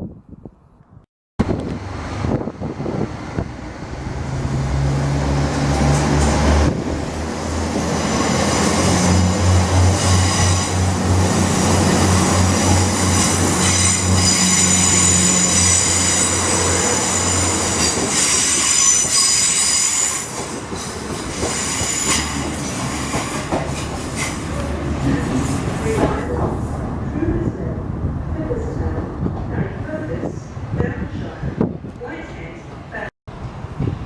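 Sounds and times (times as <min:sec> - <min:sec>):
train engine drone: 0:01.4 - 0:29.4
train wheel squeal: 0:13.0 - 0:24.4.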